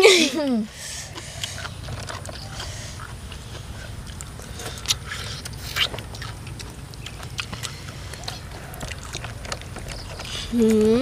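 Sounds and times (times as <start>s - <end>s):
people chewing and lip smacking: 0.0s - 11.0s.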